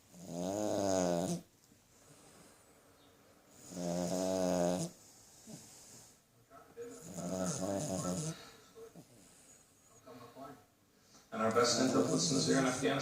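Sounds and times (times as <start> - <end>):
dog snoring: 0.1 - 1.5, 3.5 - 6.2, 6.9 - 9.6, 11.7 - 12.6.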